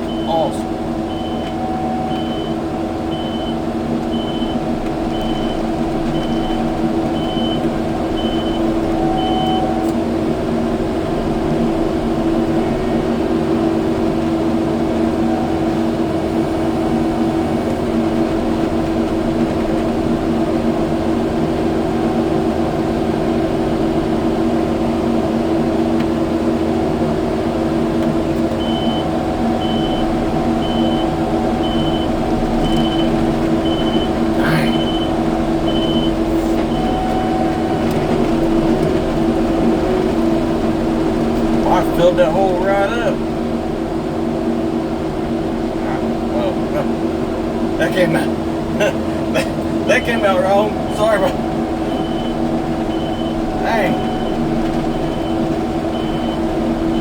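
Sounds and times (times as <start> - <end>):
reverse alarm beeping: 0.0 - 10.0, 15.0 - 17.6, 28.6 - 38.7, 49.8 - 57.0
diesel engine running under load: 0.0 - 57.0.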